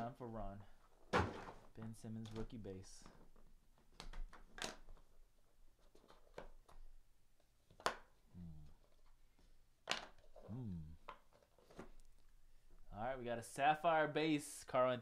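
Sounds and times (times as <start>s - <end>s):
low voice murmur: 8.3s - 8.8s, 10.5s - 11.0s.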